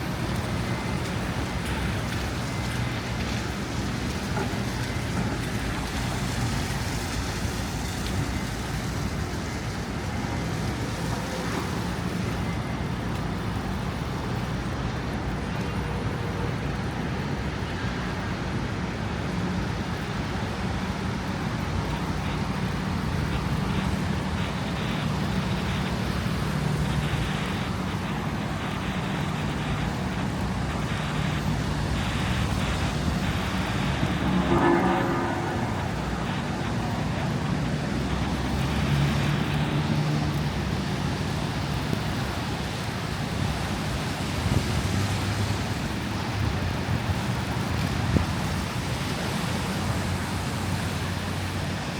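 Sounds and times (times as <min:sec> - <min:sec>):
road noise: 0:00.0 - 0:51.9
vehicle engines humming: 0:00.0 - 0:51.9.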